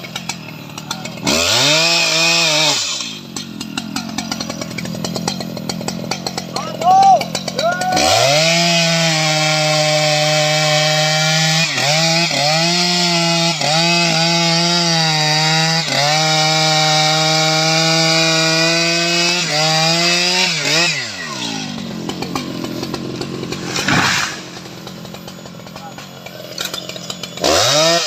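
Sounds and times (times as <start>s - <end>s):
chainsaw cutting wood: 0.0s - 28.0s.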